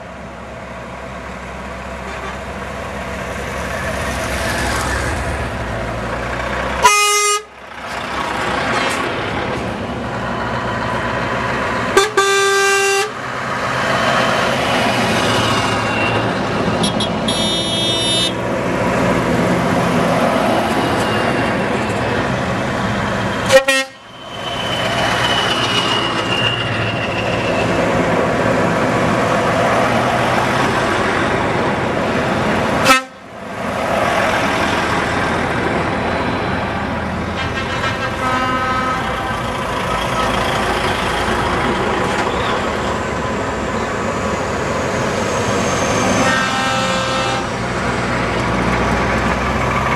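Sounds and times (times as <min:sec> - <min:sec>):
trucks running: 0:00.0 - 0:49.9
truck horns tooting: 0:02.0 - 0:02.6, 0:06.8 - 0:07.6, 0:11.9 - 0:13.2, 0:15.8 - 0:18.4, 0:23.4 - 0:24.2, 0:32.8 - 0:33.3, 0:37.3 - 0:40.8, 0:46.1 - 0:47.6.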